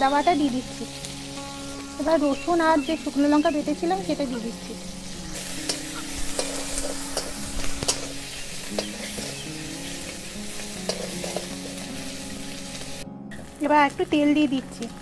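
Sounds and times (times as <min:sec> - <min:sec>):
food sizzling in hot oil: 0:00.0 - 0:15.0
metal spatula scraping a pan: 0:05.4 - 0:09.4, 0:10.8 - 0:11.9.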